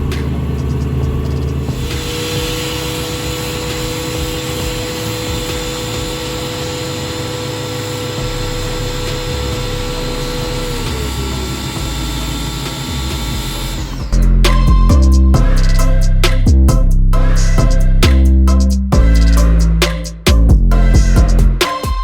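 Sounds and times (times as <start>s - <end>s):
motor-driven machine whining: 0.0s - 14.8s.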